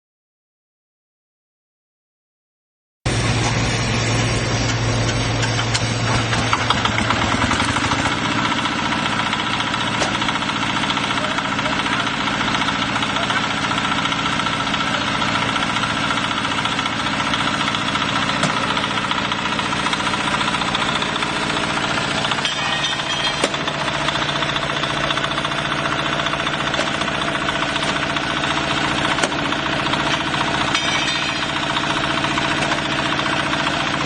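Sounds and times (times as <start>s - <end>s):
machine engine rattling: 3.1s - 34.0s
sharp knocks: 29.2s - 29.5s.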